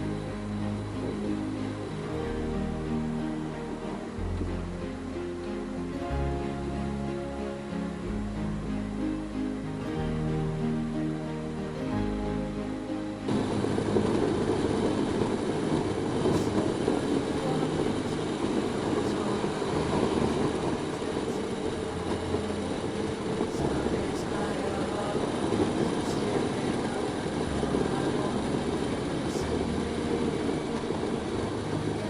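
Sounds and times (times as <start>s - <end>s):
wind noise: 12.9s - 32.0s.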